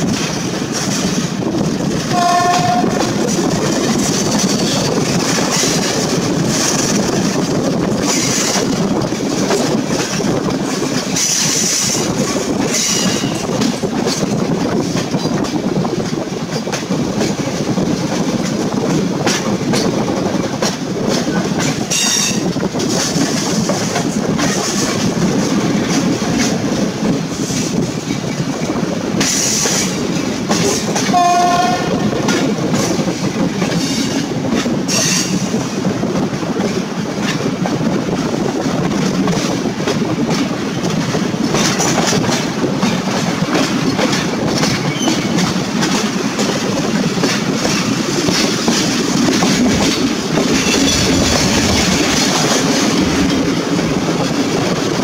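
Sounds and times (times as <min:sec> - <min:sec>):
train rumble: 0:00.0 - 0:55.0
train wheels clacking on rails: 0:00.0 - 0:55.0
rushing air: 0:45.5 - 0:55.0.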